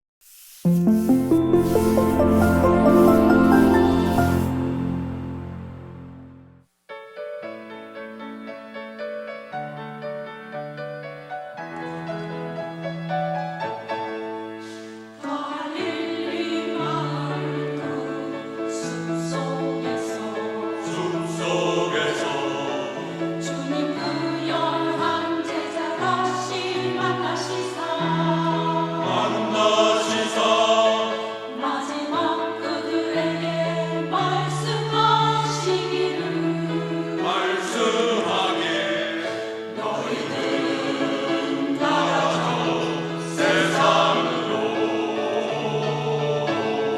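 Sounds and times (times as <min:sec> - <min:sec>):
piano accompaniment: 0:00.6 - 0:06.6, 0:32.3 - 0:46.9
church choir singing: 0:00.7 - 0:06.3, 0:12.2 - 0:46.9.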